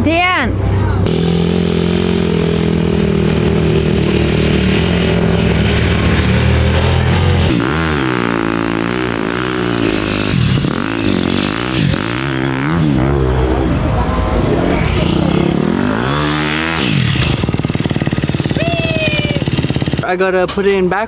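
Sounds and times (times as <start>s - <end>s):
dirt bike engine revving: 1.0s - 20.4s.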